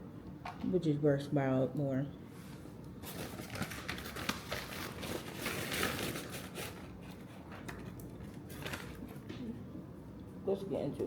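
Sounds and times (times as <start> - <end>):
food packaging rustling: 3.0 - 9.3.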